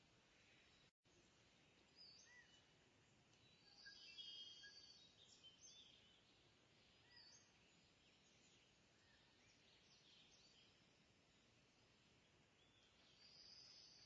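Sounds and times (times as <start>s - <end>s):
faint high bird chirps: 1.8s - 2.7s, 3.4s - 10.8s, 12.6s - 14.0s.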